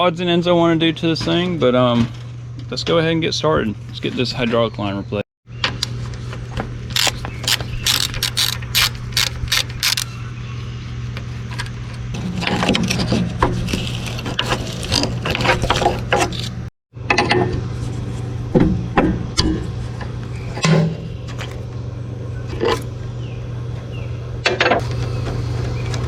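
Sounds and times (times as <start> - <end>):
ratchet wrench clicking: 7.0 - 10.1.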